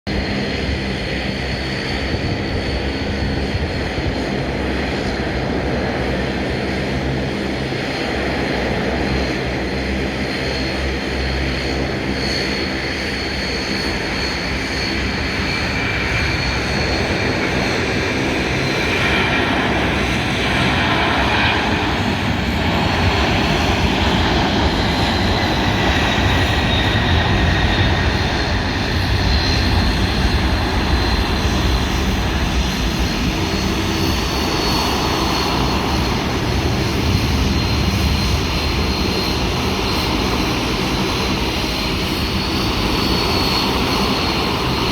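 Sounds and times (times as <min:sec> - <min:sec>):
jet engines roaring with high whine: 0:00.1 - 0:44.9.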